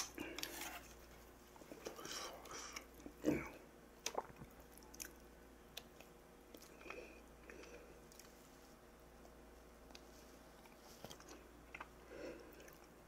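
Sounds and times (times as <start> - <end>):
person chewing: 4.0 - 8.4, 9.9 - 13.0.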